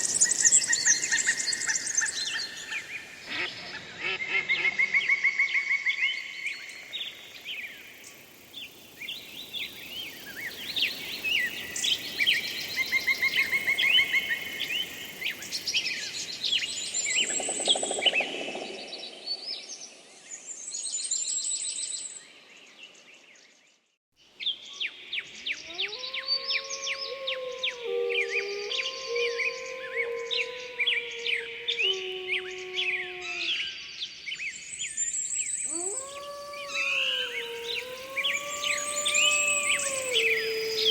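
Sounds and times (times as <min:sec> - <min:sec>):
songbirds singing: 0:24.4 - 0:40.9
wolves howling: 0:25.6 - 0:33.7, 0:35.6 - 0:40.9.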